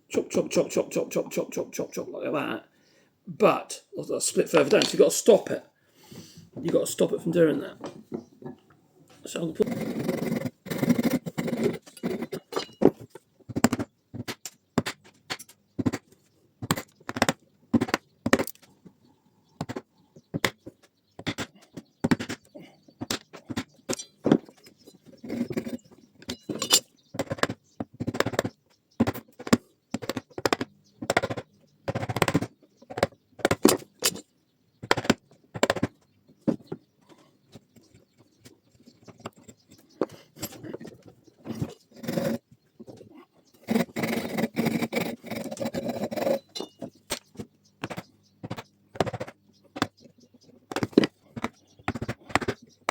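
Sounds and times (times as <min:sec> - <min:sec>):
hand tools knocking on wood and metal: 0:04.6 - 0:05.6, 0:10.9 - 0:18.6, 0:19.6 - 0:42.4, 0:43.5 - 0:52.9.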